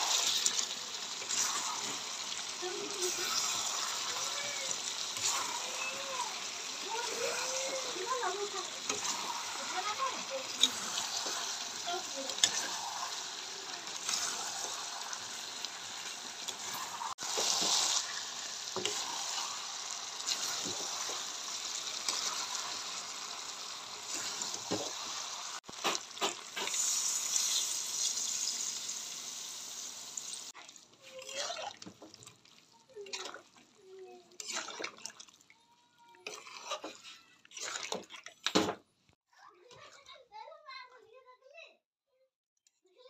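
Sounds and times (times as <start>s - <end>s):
chicken sizzling in gravy: 0.0s - 34.9s
spatula scraping pan: 1.2s - 23.0s, 24.0s - 27.6s, 34.3s - 35.1s, 36.2s - 38.5s.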